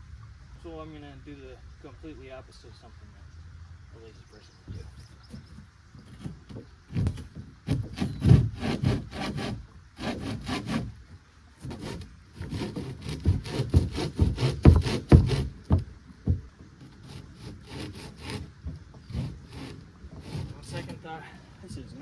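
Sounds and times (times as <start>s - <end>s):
hand saw cutting wood: 6.0s - 11.0s, 11.6s - 21.2s.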